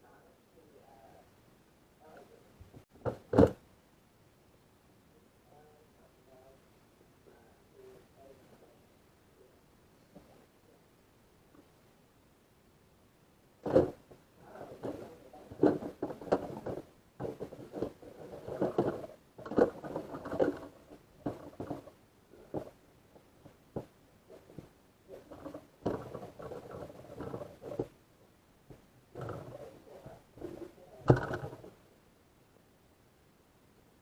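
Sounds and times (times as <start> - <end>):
plastic parts clattering: 13.6 - 14.0, 14.8 - 22.8, 23.8 - 27.9, 29.2 - 29.6, 30.4 - 31.7
sharp clicks and knocks: 30.4 - 31.7.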